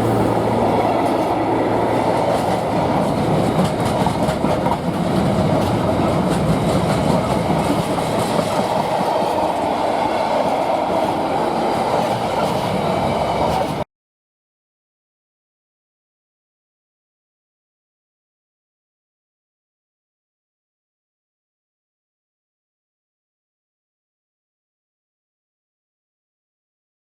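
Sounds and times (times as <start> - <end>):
train wheels rumbling on rails: 0.0 - 13.8
wheels clacking over rail joints: 0.0 - 13.8.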